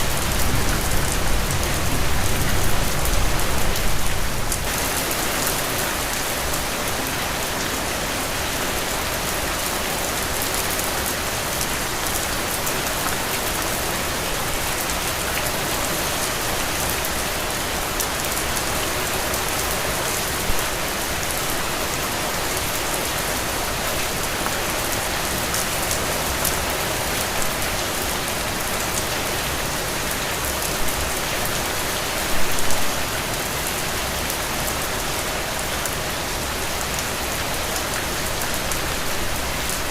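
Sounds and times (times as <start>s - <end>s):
heavy rain falling: 0.0s - 39.9s
louder rain hits: 0.0s - 39.9s.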